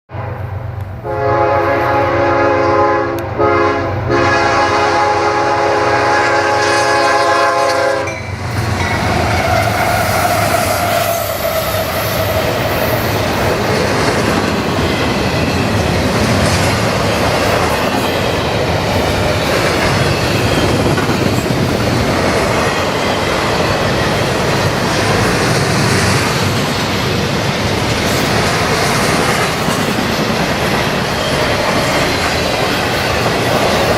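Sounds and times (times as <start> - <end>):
locomotive air horn blasts: 0.1 - 8.2
freight train passing: 0.1 - 33.9.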